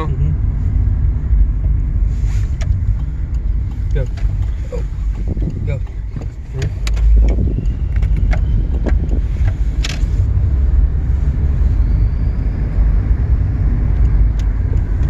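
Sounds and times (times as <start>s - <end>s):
car driving on road: 0.0s - 15.0s
sharp clicks: 2.5s - 10.4s.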